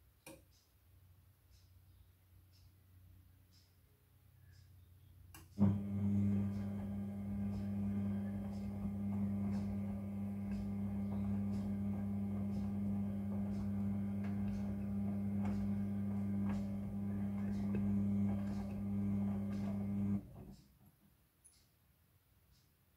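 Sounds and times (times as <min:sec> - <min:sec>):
washing machine motor hum: 0:05.5 - 0:20.6.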